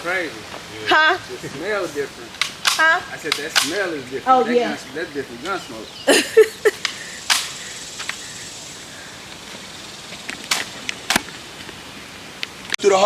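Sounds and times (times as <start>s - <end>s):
sharp gunshots: 2.4s - 4.0s, 7.2s - 7.8s.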